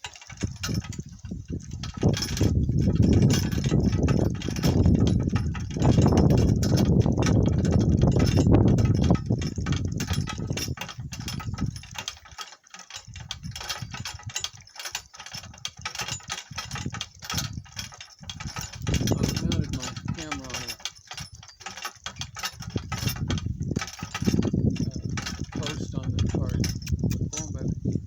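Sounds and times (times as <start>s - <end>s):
cart rattling and knocking: 0.0s - 28.0s
heavy low rumble: 22.6s - 28.0s.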